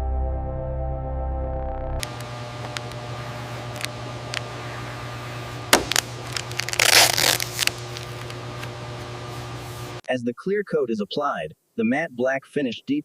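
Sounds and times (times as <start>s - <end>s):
ambient music: 0.0s - 2.0s
steady hum: 2.0s - 10.0s.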